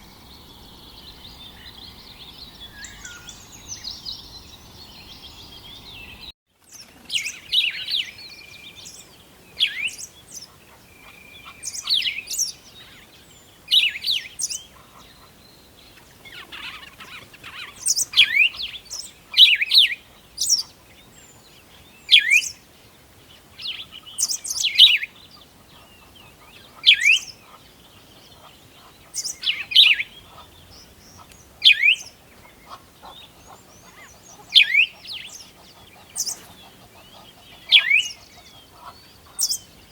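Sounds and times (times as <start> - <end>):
bird call with falling sweep: 0.0 - 6.3
faint bird chirps: 0.0 - 39.9.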